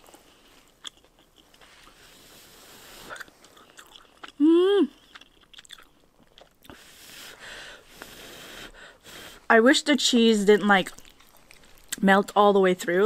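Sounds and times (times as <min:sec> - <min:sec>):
person chewing noodles: 0:00.0 - 0:09.4, 0:10.8 - 0:12.0
person humming: 0:04.4 - 0:05.0.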